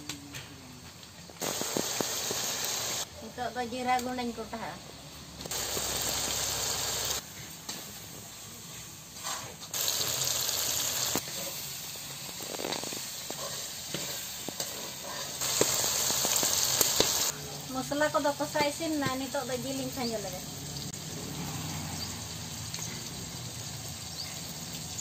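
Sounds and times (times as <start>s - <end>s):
curry sizzling in a pan: 1.4s - 25.0s.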